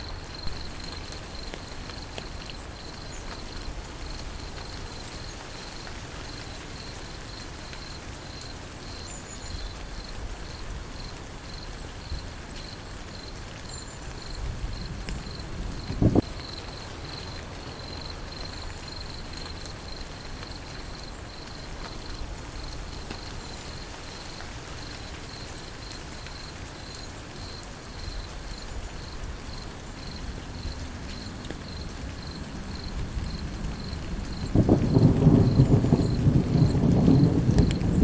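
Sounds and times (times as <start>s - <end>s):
cricket chirping: 0.0s - 38.0s
steady rain falling: 0.0s - 38.0s
thunder rumble: 14.2s - 16.9s, 30.6s - 38.0s.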